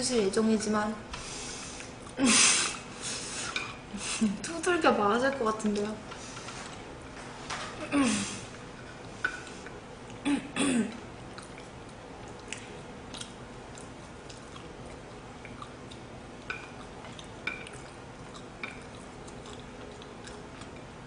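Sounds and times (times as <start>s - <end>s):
short humming vocal sound: 1.0s - 4.5s, 7.7s - 11.8s
person chewing food: 1.5s - 2.8s, 10.9s - 21.0s
wet mouth clicks and smacks: 12.3s - 14.7s.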